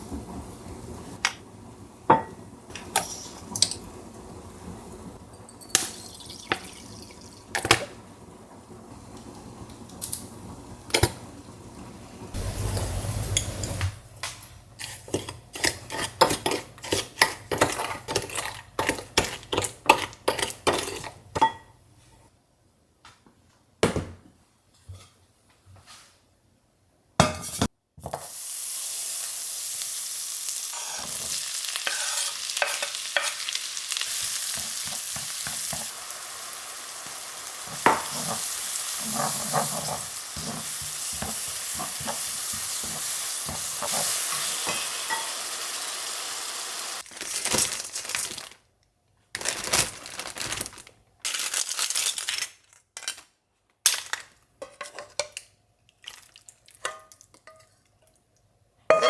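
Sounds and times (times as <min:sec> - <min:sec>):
food sizzling in a pan: 0:05.9 - 0:21.2, 0:27.4 - 0:48.3.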